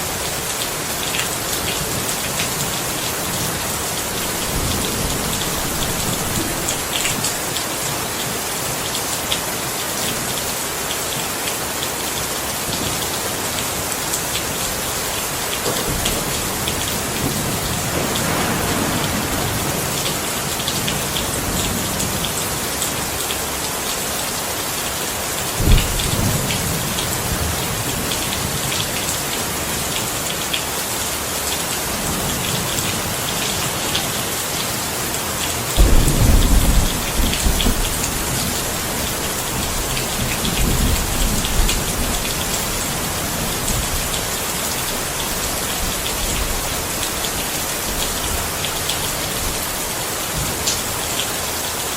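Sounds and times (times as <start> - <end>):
heavy rain pattering: 0.0 - 51.9
thunder rumbling: 2.8 - 7.5, 15.7 - 22.6, 25.6 - 28.6, 35.8 - 44.4.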